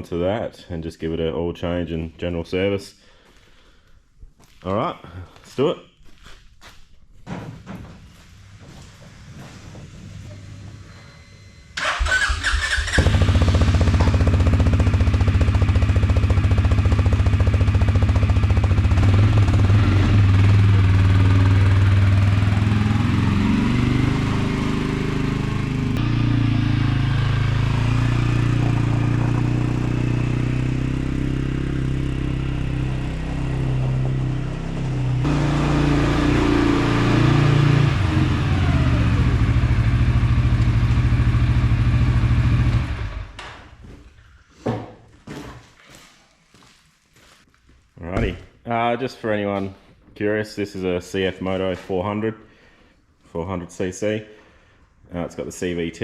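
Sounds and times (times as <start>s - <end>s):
quad bike engine starting and running: 9.3s - 43.9s.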